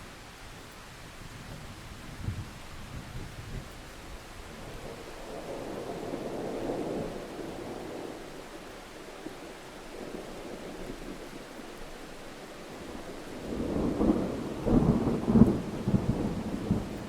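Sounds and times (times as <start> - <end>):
steady rain: 0.0 - 17.0
thunder rumbling: 4.3 - 11.7, 12.5 - 17.0.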